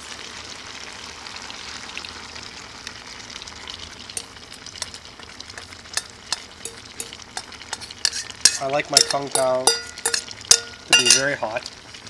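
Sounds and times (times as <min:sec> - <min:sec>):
chicken sizzling in oil: 0:00.0 - 0:12.0
sharp crackles and pops: 0:02.4 - 0:12.0.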